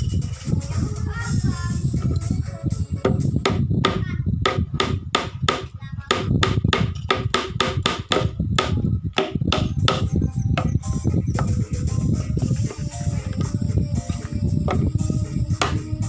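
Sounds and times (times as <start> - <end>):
background music: 0.0 - 5.3, 9.5 - 16.0
rapid hammer taps: 3.1 - 10.8, 15.6 - 15.9.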